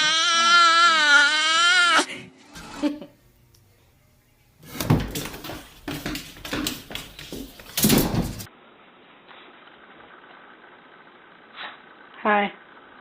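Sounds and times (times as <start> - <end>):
irregular knocks and clattering: 4.7 - 8.5.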